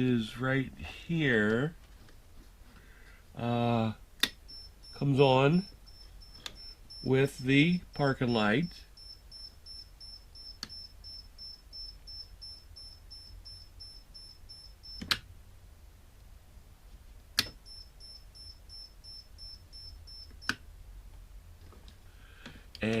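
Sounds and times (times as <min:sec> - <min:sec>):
rapid high-pitched beeps: 0:04.4 - 0:07.5, 0:08.9 - 0:15.0, 0:17.6 - 0:20.4.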